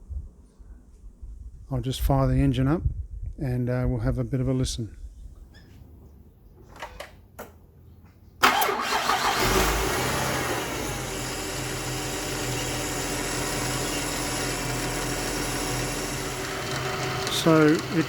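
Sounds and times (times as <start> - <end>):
car engine starting and idling: 8.4 - 18.0
noise from engine belt: 8.4 - 18.0.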